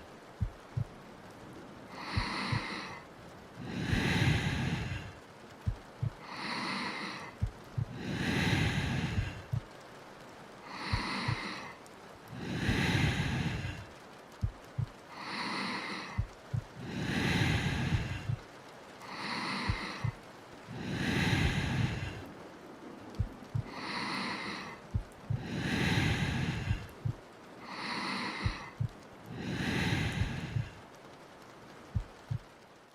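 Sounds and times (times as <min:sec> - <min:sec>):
heartbeat thumps: 0:00.4 - 0:01.0, 0:02.1 - 0:02.7, 0:05.7 - 0:06.2, 0:07.4 - 0:09.7, 0:10.9 - 0:11.5, 0:14.4 - 0:15.0, 0:16.2 - 0:16.8, 0:17.4 - 0:18.4, 0:23.2 - 0:23.7, 0:24.8 - 0:27.3, 0:28.4 - 0:29.0, 0:29.9 - 0:30.7, 0:32.0 - 0:32.5
woman breathing deeply: 0:01.9 - 0:03.0, 0:03.6 - 0:09.6, 0:10.6 - 0:18.4, 0:19.0 - 0:22.4, 0:23.2 - 0:30.9.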